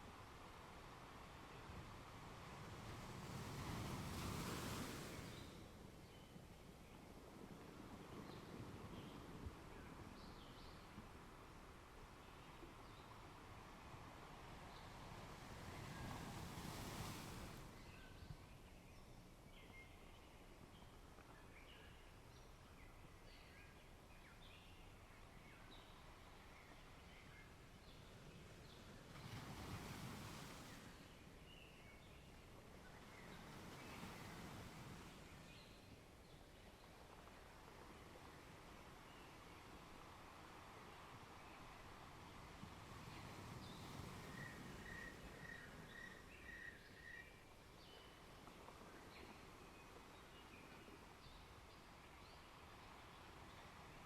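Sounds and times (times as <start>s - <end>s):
low outdoor hiss: 0.0s - 54.0s
wave washing in: 2.3s - 5.6s
faint songbird chirps: 4.4s - 11.4s, 12.0s - 54.0s.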